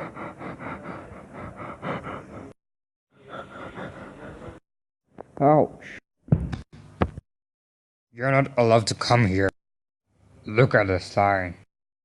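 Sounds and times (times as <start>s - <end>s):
person panting rapidly: 0.0s - 2.6s, 3.2s - 4.7s.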